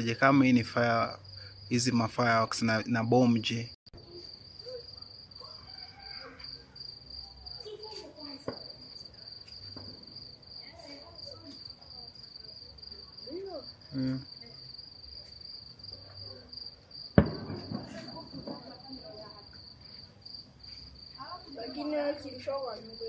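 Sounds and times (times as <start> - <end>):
crickets trilling: 0.0 - 23.0
distant fireworks pops: 7.6 - 10.3, 17.1 - 20.1.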